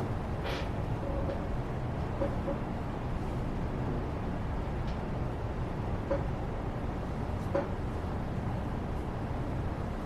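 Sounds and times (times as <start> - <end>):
low background noise: 0.0 - 10.0.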